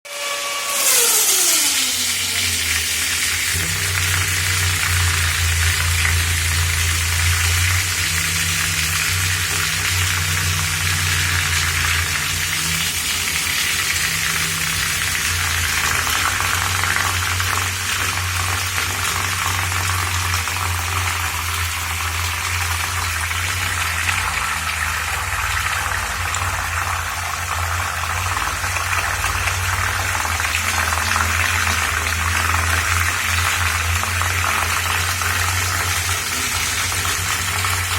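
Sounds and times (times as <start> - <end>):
fan motor hum: 0.1 - 37.9
water churning: 0.2 - 37.9.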